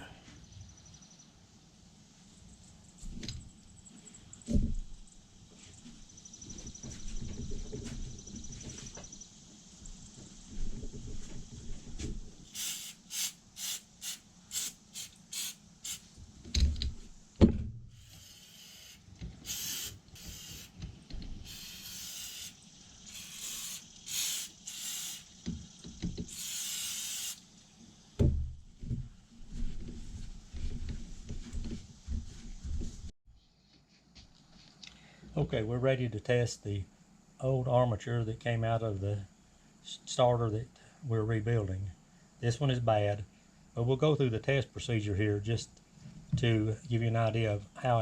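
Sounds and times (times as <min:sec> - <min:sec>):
aerosol can spraying: 0:12.5 - 0:16.1, 0:18.0 - 0:20.8, 0:21.4 - 0:25.4, 0:26.2 - 0:27.5.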